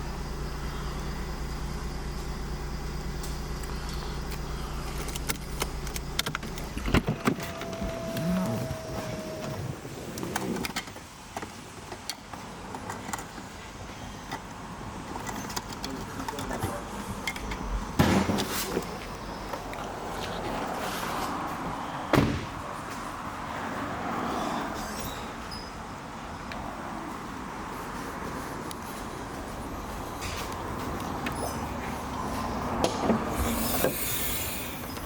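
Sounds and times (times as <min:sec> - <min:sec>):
car engine idling: 0:00.0 - 0:10.0
power window whine: 0:00.3 - 0:10.6, 0:32.9 - 0:35.0
car door shutting: 0:03.2 - 0:11.0, 0:22.1 - 0:22.8, 0:31.2 - 0:35.0
clicks and handling noises: 0:14.2 - 0:17.7.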